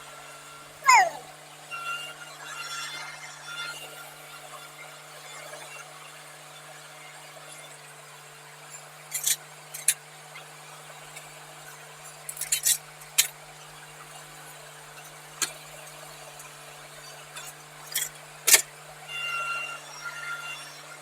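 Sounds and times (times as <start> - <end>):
high squeal: 0.8 - 1.3.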